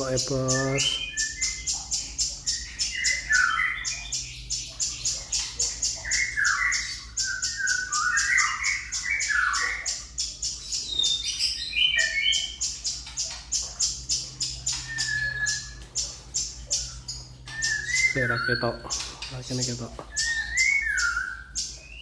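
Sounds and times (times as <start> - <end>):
bird squawking: 0.0 - 22.0
bird calling sharp high notes: 14.5 - 22.0.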